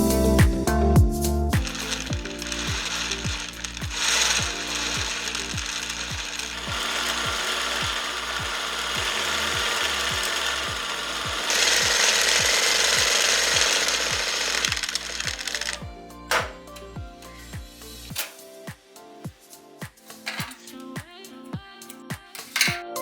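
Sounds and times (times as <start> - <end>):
music with steady beat: 0.0 - 23.0
sewing machine clattering: 1.6 - 16.5.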